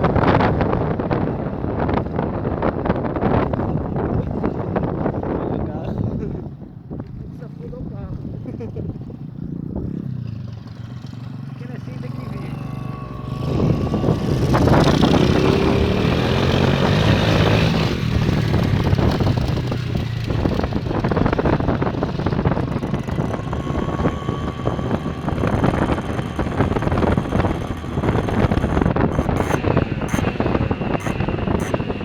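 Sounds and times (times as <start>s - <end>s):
wind buffeting microphone: 0.0s - 32.0s
small motorcycle engine revving: 9.4s - 32.0s.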